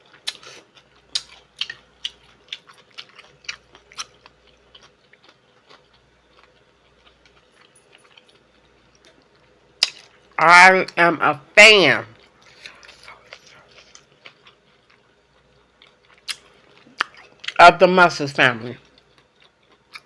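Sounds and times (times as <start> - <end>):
person chewing with mouth smacks: 0.1 - 10.2, 12.2 - 15.0, 15.8 - 17.6, 18.8 - 20.0.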